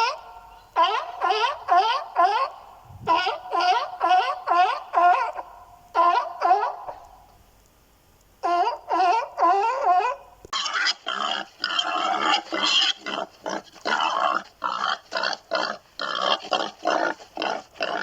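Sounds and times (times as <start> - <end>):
short harsh animal calls: 0.0 - 7.2
wavering animal calls: 0.0 - 7.3, 8.4 - 18.0.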